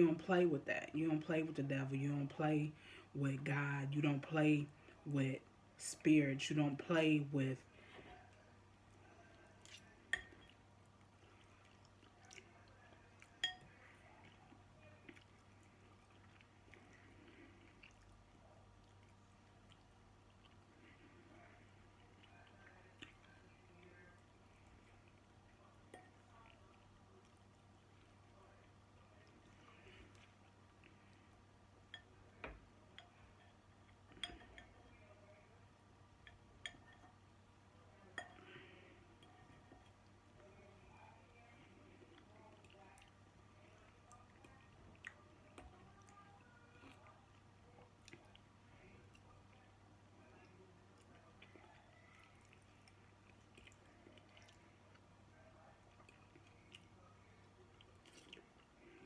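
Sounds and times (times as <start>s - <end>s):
eating sounds: 7.8s - 31.4s, 50.4s - 59.0s.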